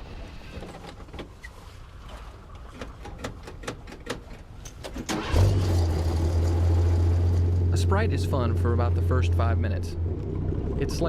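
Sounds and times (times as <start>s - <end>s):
over-snow vehicle engine drone: 5.3s - 11.0s.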